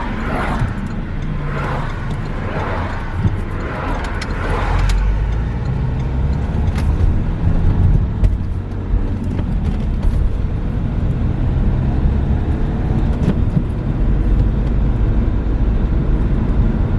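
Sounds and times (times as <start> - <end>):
car engine and road rumble: 0.0 - 16.9.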